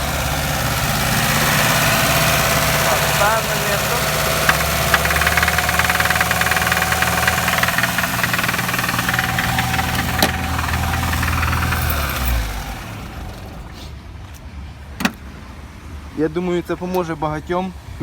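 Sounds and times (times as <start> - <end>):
car engine idling with knock: 0.0 - 13.9.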